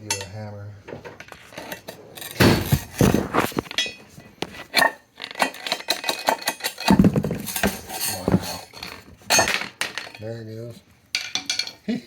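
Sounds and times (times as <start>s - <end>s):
metal tools clinking on metal: 4.8s - 10.4s.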